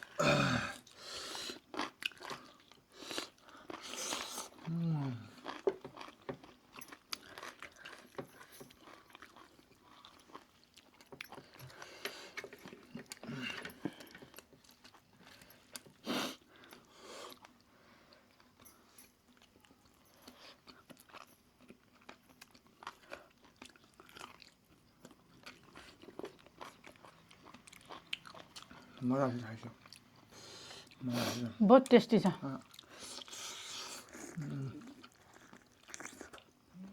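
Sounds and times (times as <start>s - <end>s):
chewing and biting: 1.6s - 4.7s, 5.3s - 16.0s, 19.2s - 29.0s, 32.6s - 36.6s.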